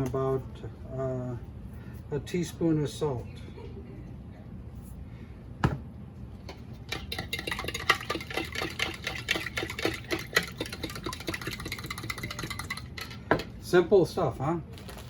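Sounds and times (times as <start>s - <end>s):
object set down knock: 5.6s - 5.8s
utensil whisking in container: 6.9s - 13.2s.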